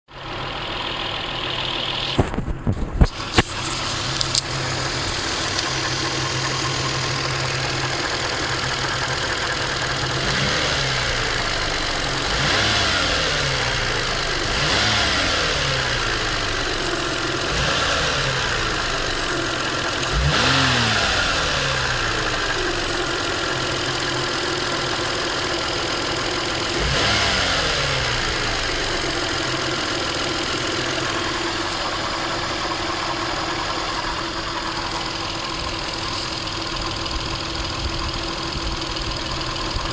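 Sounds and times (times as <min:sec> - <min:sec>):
car engine idling and revving: 0:00.1 - 0:39.9.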